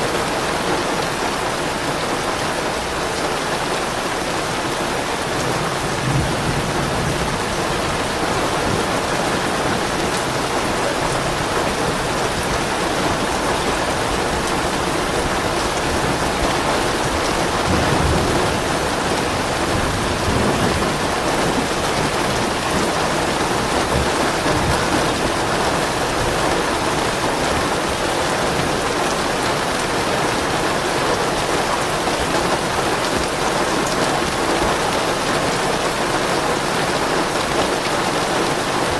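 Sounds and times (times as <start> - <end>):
steady rain: 0.0 - 38.9
distant thunder rumbling: 5.4 - 28.9.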